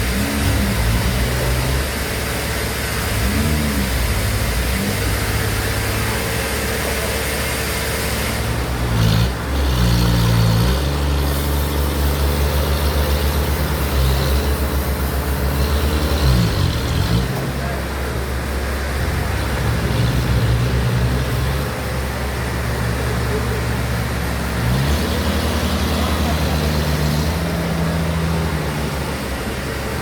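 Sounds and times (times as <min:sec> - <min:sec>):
engine revving and running: 0:00.0 - 0:30.0.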